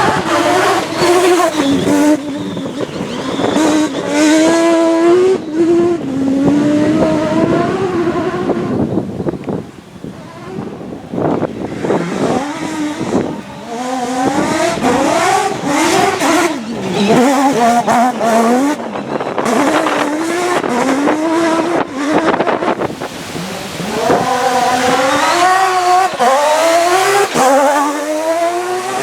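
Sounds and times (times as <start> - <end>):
rally car engine revving: 0.0 - 29.0.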